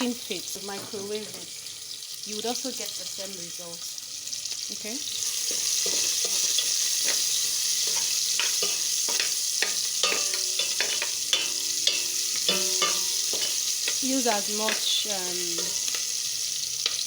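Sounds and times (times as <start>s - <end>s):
onions sizzling in oil: 0.0s - 17.0s
utensil scraping a pot: 5.2s - 14.0s, 14.6s - 16.2s.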